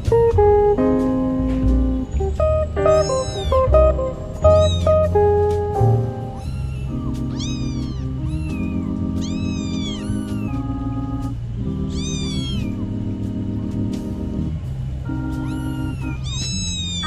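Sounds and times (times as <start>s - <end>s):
background music: 0.0s - 16.2s
cat meowing: 2.8s - 10.6s, 11.9s - 12.9s, 15.4s - 17.0s.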